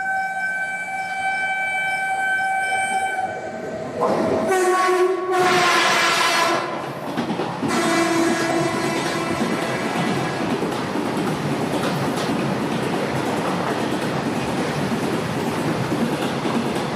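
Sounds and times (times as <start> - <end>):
train horn: 0.0 - 6.8, 7.7 - 10.5
passing train rushing and rattling: 0.0 - 16.9.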